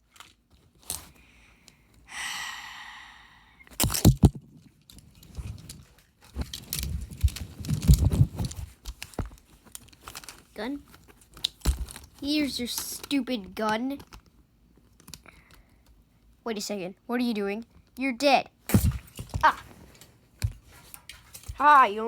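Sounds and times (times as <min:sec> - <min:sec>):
rustling and knocking: 0:03.8 - 0:12.2.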